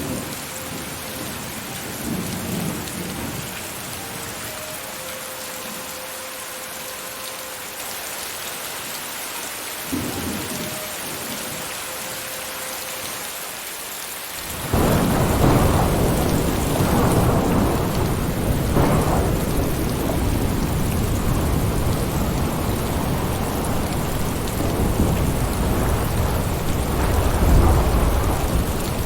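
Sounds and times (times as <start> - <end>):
rain hissing: 0.0 - 29.0
thunder rumbling: 14.4 - 29.0.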